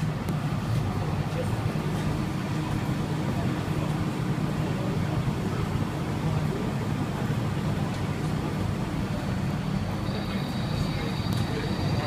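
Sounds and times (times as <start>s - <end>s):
people-mover car hum: 0.0s - 12.0s.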